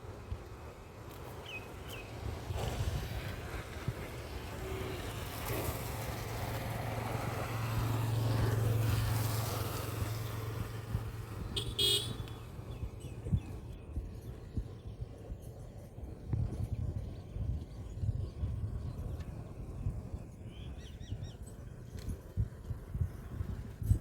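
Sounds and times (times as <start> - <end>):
vehicle engine passing: 4.5 - 12.6
horn beeps: 11.6 - 12.4.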